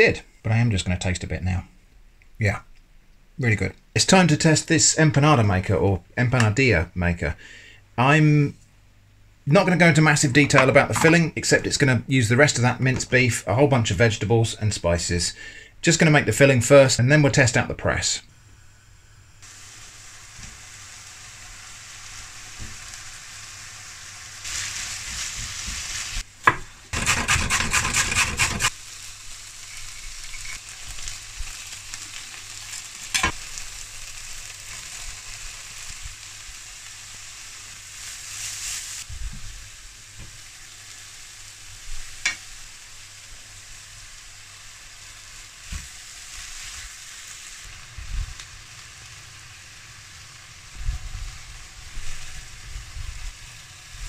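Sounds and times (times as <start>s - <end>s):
food sizzling in a frying pan: 18.3s - 54.0s
utensil stirring in pan: 26.9s - 28.7s.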